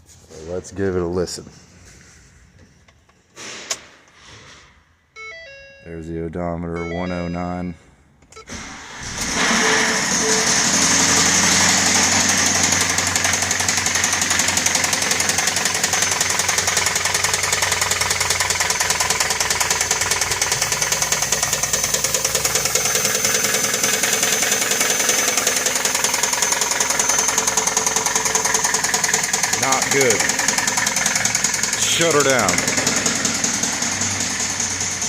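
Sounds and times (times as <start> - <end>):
engine running with rod knock: 10.6 - 35.0.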